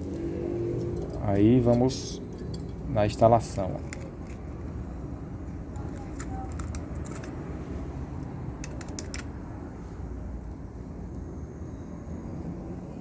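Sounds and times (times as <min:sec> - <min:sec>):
small parts clicking and tapping: 0:05.7 - 0:07.4, 0:08.6 - 0:09.3.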